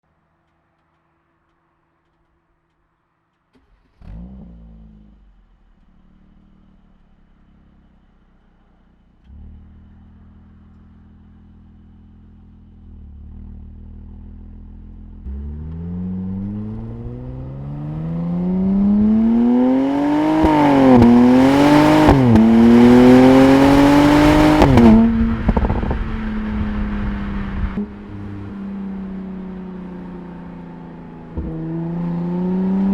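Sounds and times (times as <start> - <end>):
car engine revving: 12.9 - 32.9
exhaust crackles and pops: 20.1 - 28.6.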